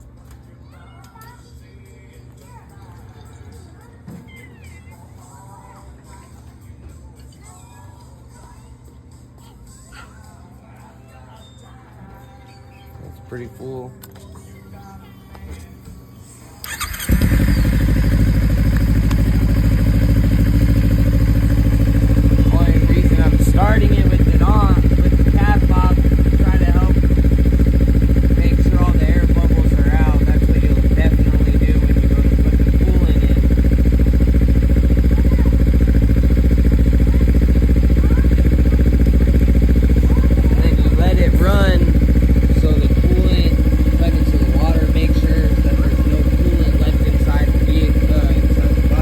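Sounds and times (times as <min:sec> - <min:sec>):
electric starter cranking: 0:16.6 - 0:32.8
motorcycle engine idling: 0:16.6 - 0:49.0.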